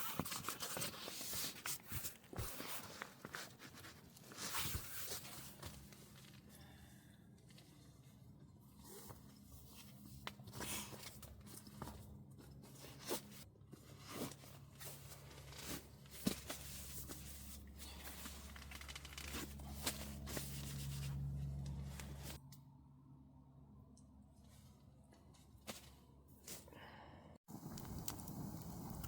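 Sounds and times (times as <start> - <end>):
rustling and crinkling: 0.0 - 6.6, 7.4 - 22.4
tearing or crunching sounds: 13.9 - 22.4
steady low hum: 16.1 - 27.6.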